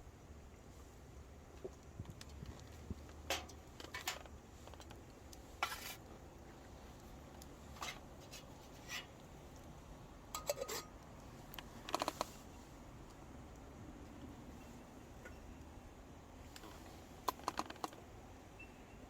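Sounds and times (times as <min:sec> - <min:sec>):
metal cookware clinking and scraping: 0:03.3 - 0:04.2, 0:10.3 - 0:11.0.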